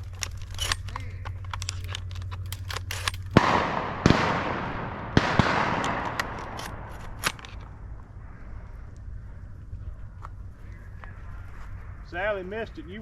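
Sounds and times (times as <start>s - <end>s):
faint distant shots: 2.4s - 6.9s
shotgun blasts echoing: 2.5s - 7.2s.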